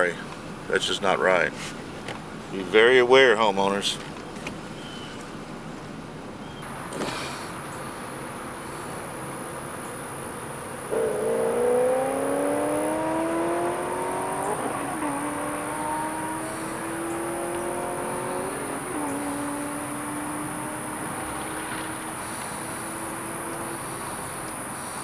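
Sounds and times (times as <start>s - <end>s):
road noise hiss: 0.0s - 25.0s
vehicle engine accelerating: 7.8s - 25.0s.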